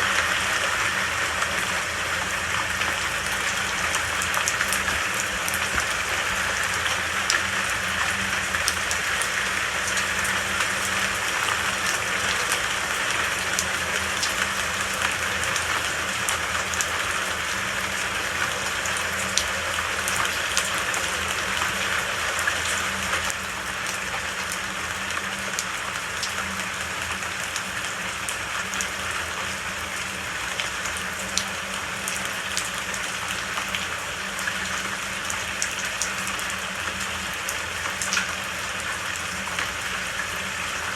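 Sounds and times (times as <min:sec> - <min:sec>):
steady rain: 0:00.0 - 0:40.9
raindrop ticks: 0:37.8 - 0:38.4.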